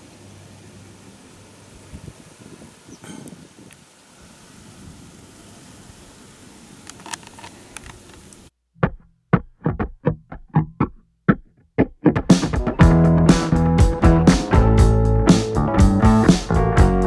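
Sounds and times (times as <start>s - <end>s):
outdoor background hiss: 0.0s - 8.7s, 12.3s - 17.0s
plucked guitar notes: 12.0s - 17.0s.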